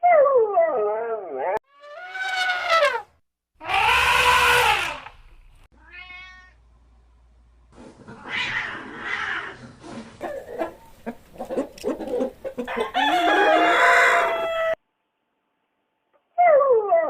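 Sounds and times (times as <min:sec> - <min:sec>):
cat meowing: 0:05.8 - 0:06.6.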